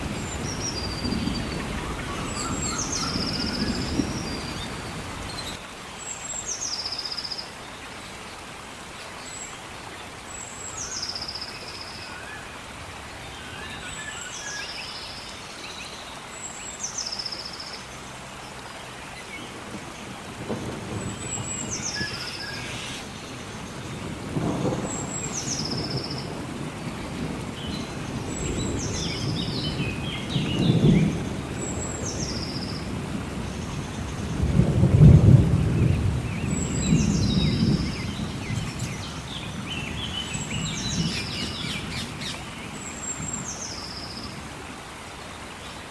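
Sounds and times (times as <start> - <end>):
thunder rumbling: 0.0 - 5.3, 19.6 - 42.3
steady rain: 0.0 - 45.9.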